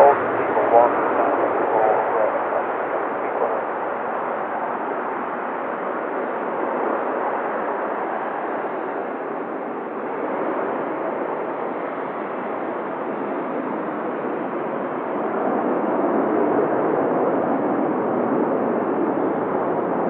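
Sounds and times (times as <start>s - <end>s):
radio static hiss: 0.0s - 4.8s.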